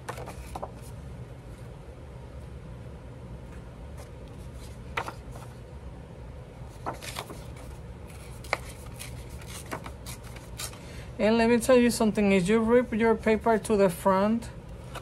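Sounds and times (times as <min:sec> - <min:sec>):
paper rustling: 0:00.0 - 0:01.7, 0:04.0 - 0:05.6, 0:06.7 - 0:10.8, 0:14.8 - 0:15.0.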